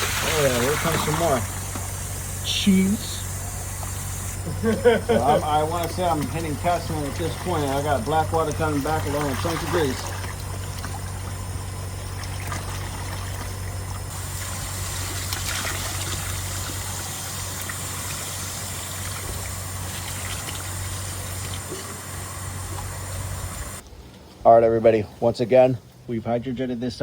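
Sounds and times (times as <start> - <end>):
water gushing and splashing from drain: 0.0 - 2.1, 5.2 - 22.1
low hum of water jetter: 0.0 - 27.0.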